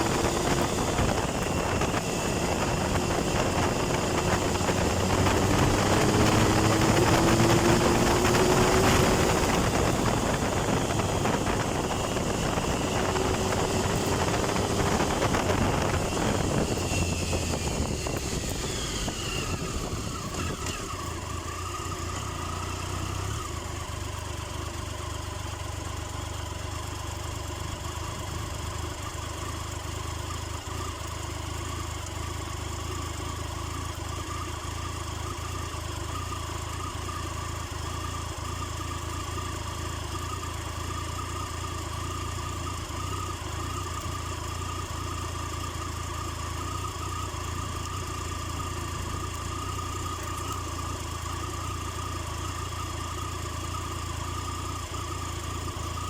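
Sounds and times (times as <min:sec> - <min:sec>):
wind noise: 0:00.0 - 0:20.9
motorcycle engine slowing and idling: 0:00.0 - 0:56.0.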